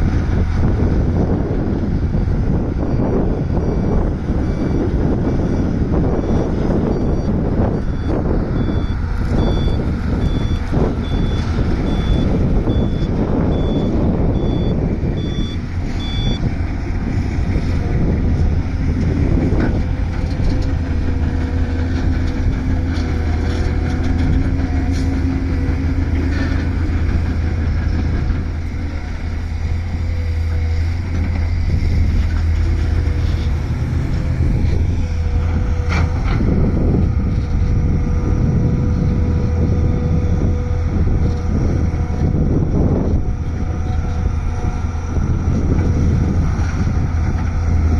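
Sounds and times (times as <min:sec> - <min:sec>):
excavator diesel engine: 0:00.0 - 0:47.9
reversing alarm beeping: 0:01.4 - 0:16.5.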